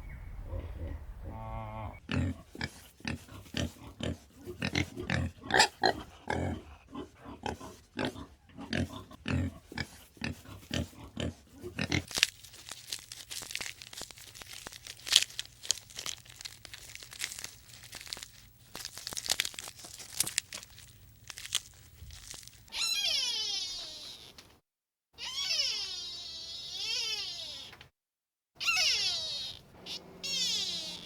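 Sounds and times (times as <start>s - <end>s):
pig grunting: 0.2s - 12.1s, 28.6s - 31.0s
crackly crunching and rustling: 8.7s - 23.0s
cat meow: 22.7s - 24.4s, 25.2s - 27.8s, 28.6s - 31.0s.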